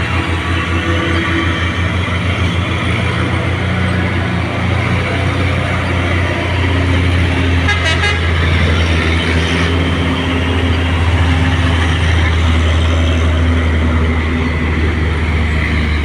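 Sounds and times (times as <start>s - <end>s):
warbling horn toot: 0.0s - 12.2s
diesel truck engine running: 0.0s - 16.0s.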